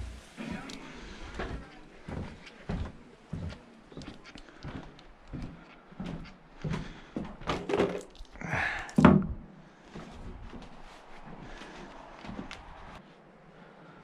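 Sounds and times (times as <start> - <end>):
handling knocks and thunks: 9.0 - 9.5.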